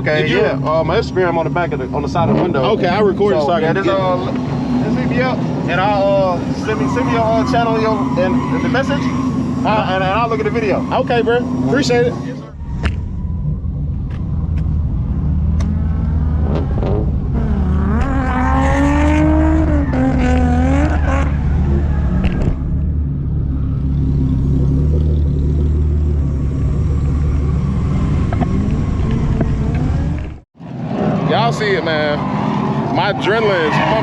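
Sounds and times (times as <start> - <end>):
engine revving: 0.0 - 34.0
car engine idling: 20.8 - 30.4.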